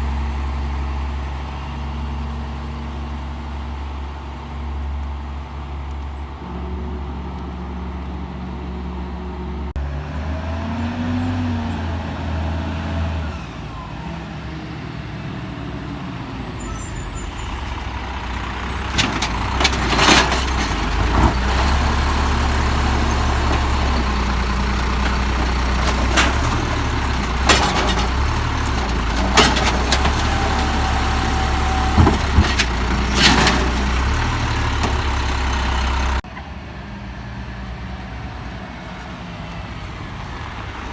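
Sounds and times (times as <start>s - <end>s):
diesel engine running: 15.0s - 36.2s.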